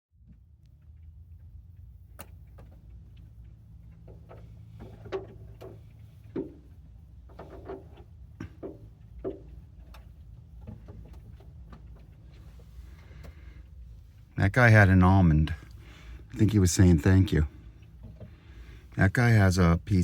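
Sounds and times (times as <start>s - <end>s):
low steady hum: 0.1s - 20.0s
birds pecking on car: 0.9s - 14.4s, 17.5s - 19.0s.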